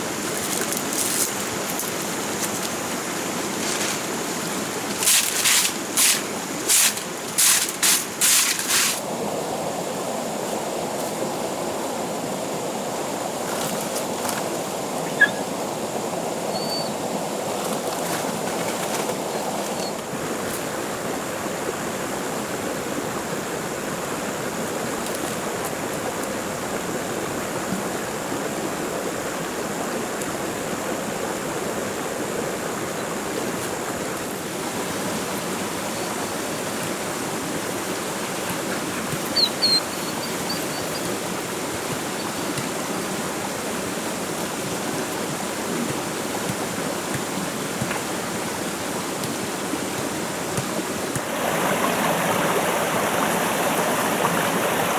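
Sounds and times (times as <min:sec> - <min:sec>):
flowing stream water: 0:00.0 - 0:54.9.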